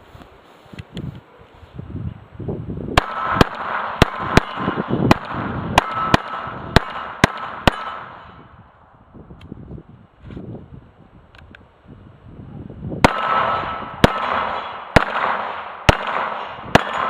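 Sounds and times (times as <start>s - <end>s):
wind rumble on microphone: 0.0s - 17.0s
pistol shots: 3.0s - 8.3s, 13.0s - 17.0s
steel target ringing: 5.8s - 8.3s, 13.1s - 17.0s.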